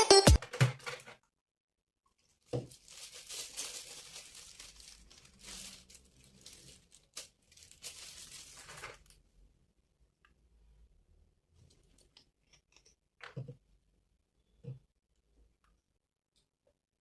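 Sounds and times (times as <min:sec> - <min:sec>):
crinkling and rustling: 0:02.1 - 0:09.3.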